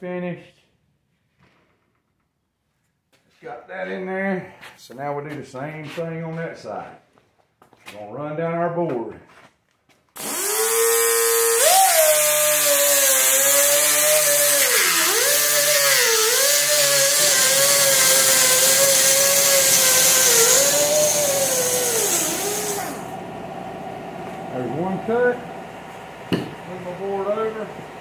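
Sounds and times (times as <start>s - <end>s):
die grinder cutting wire mesh: 10.2s - 23.2s.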